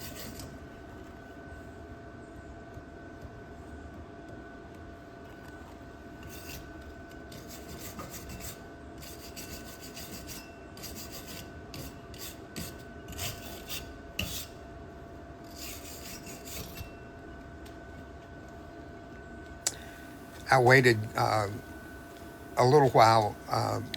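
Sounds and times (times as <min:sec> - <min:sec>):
wire brush scrubbing steel: 0:07.4 - 0:14.5, 0:15.5 - 0:16.8.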